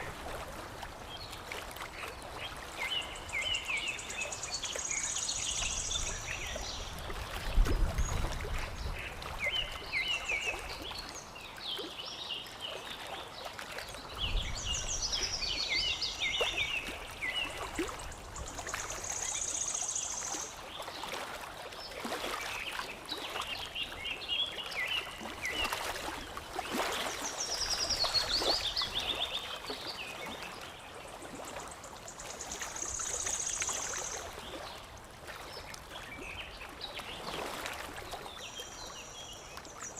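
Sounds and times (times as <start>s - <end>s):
water trickling and lapping: 0.0s - 39.9s.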